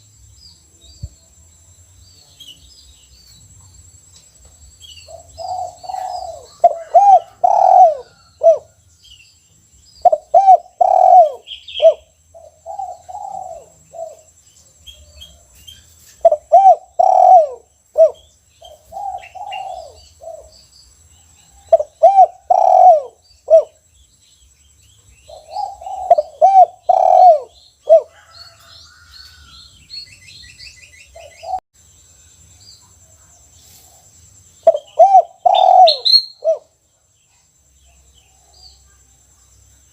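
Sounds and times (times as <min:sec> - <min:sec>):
dove cooing: 0:05.1 - 0:08.8, 0:10.0 - 0:14.3, 0:16.2 - 0:20.5, 0:21.6 - 0:23.8, 0:25.3 - 0:28.7, 0:34.6 - 0:36.7.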